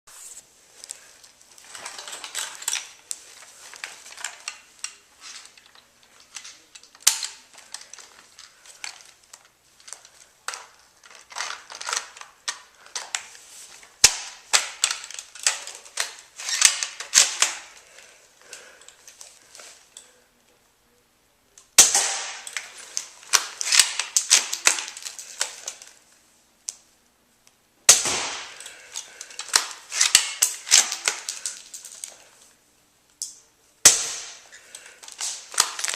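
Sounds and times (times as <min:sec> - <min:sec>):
loud single cracks: 0:21.8 - 0:22.6, 0:27.9 - 0:28.8, 0:33.8 - 0:34.5.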